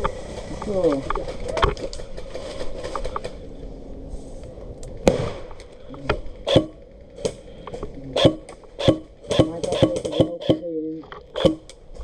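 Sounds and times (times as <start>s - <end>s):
sharp cracks of airsoft fire: 5.0s - 5.6s, 8.2s - 10.7s.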